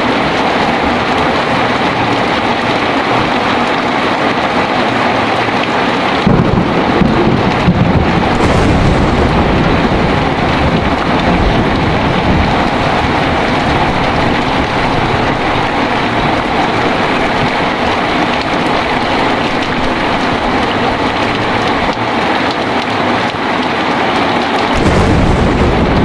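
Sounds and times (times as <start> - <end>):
heavy rain falling: 0.0 - 26.0
deep rumble of thunder: 6.2 - 22.3, 24.7 - 26.0.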